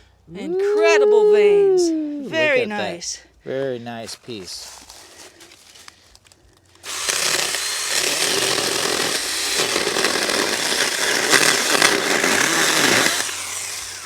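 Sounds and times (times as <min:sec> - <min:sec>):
electric chainsaw cutting wood: 0:06.8 - 0:14.0.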